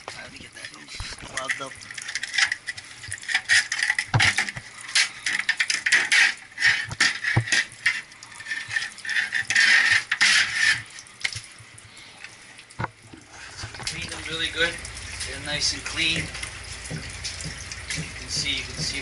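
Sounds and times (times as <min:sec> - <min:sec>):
hissing scrape: 0:04.8 - 0:10.9.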